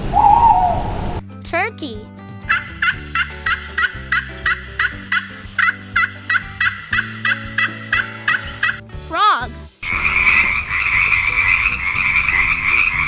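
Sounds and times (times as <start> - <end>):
turkey gobbling: 0.0 - 1.2, 9.9 - 13.0.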